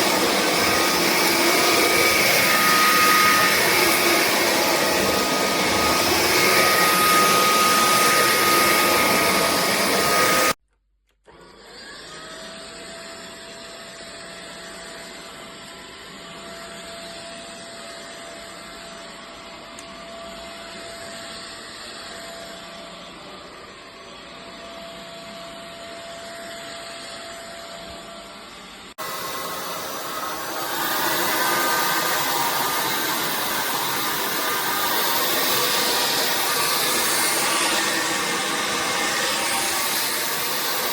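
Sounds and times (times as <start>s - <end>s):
stick vacuum running: 0.0s - 10.6s, 29.0s - 40.9s.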